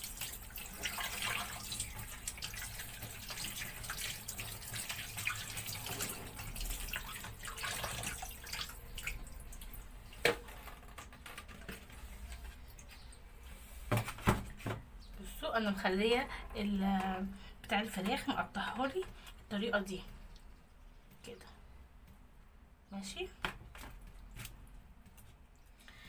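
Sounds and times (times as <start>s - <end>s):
tap water running into sink: 0.0s - 9.7s.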